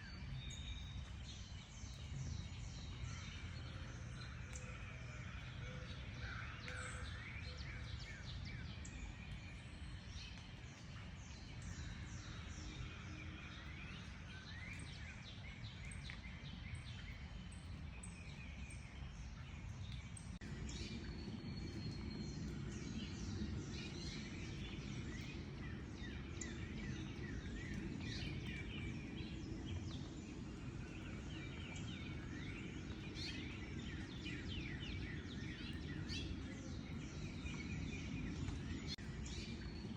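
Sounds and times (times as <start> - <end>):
birds chirping and singing: 20.4 - 39.9.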